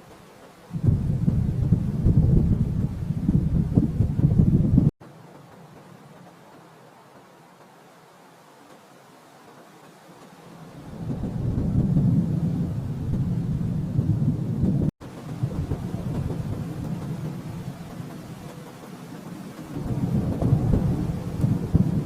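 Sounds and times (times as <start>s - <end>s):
rolling thunder: 0.7s - 4.9s, 10.7s - 22.0s.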